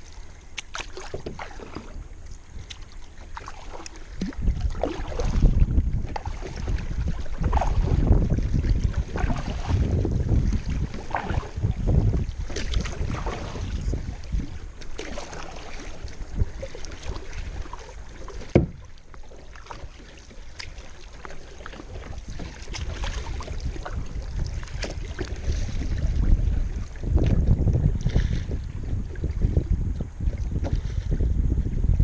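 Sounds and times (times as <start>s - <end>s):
kayak paddle splashing water: 0.0s - 32.0s
wind rumbling on microphone: 0.0s - 32.0s.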